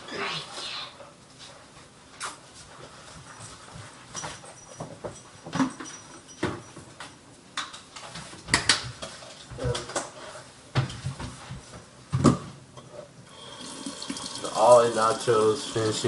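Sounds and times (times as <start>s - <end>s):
dishes clinking: 4.1s - 6.9s.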